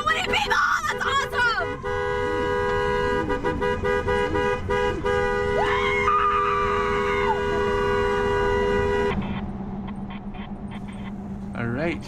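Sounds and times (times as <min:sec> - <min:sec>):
quick horn toots: 0:01.1 - 0:09.4.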